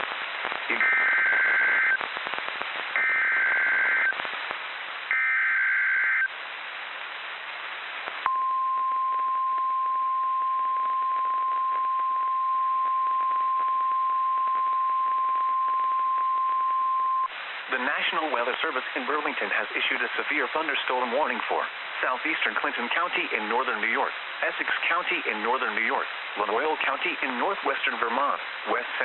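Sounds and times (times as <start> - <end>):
radio hiss: 0.0 - 8.3, 17.3 - 29.0.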